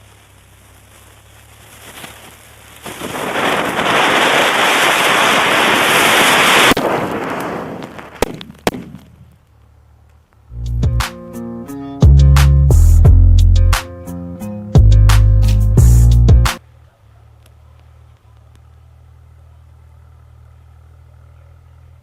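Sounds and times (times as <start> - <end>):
firework hissing: 0.0 - 9.0
sharp firework cracks: 0.0 - 9.6.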